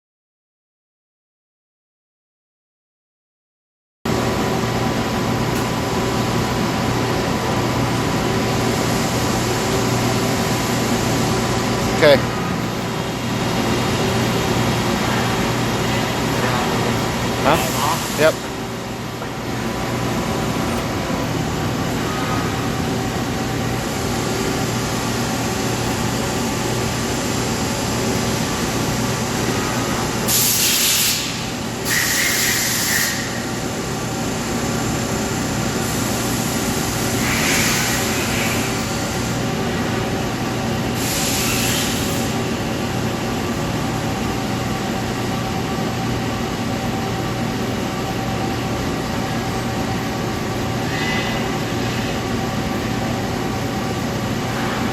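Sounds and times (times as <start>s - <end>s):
lathe mechanical hum: 4.1s - 54.9s
short hissing bursts: 30.3s - 33.4s, 41.0s - 42.4s.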